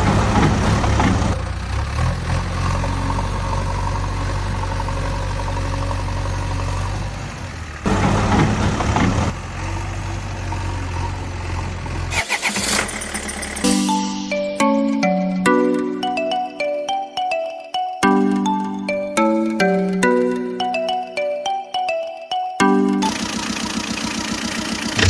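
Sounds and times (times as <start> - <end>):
vehicle engine humming: 0.0 - 16.4, 22.6 - 25.0.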